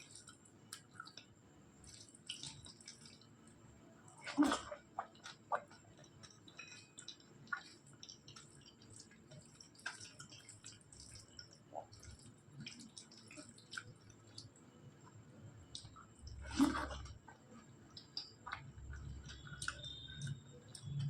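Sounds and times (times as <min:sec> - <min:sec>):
mouth chewing wetly: 0:17.9 - 0:21.0.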